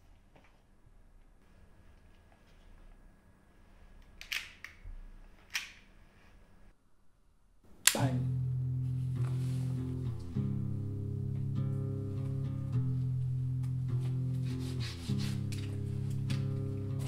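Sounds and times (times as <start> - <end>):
sharp snaps: 7.8 - 8.2
guitar chords film score: 8.0 - 17.0.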